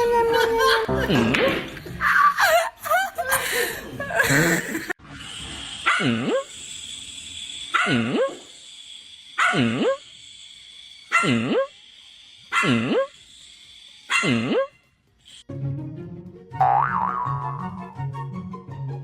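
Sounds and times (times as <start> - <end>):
dog barking: 5.8 - 6.4, 7.7 - 8.4, 9.4 - 10.0, 11.1 - 11.6, 12.5 - 13.1, 14.1 - 14.7.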